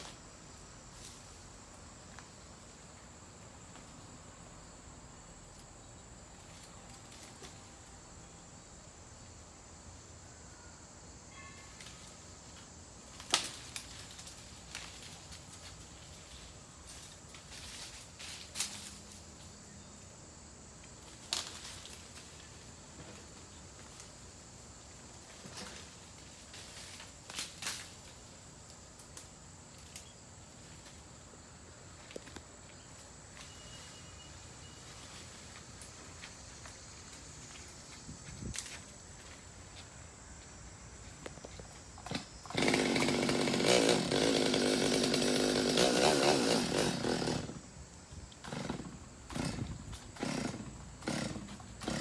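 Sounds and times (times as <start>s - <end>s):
sharp knocks and cracks: 13.2s - 14.9s.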